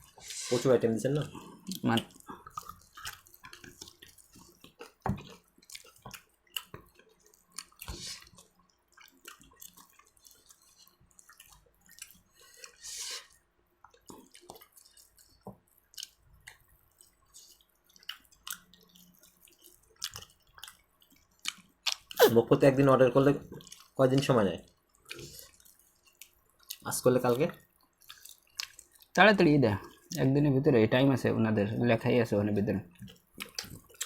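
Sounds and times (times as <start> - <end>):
wet chewing and lip smacks: 1.3 - 22.4, 23.5 - 29.2, 29.8 - 30.2, 32.9 - 34.0.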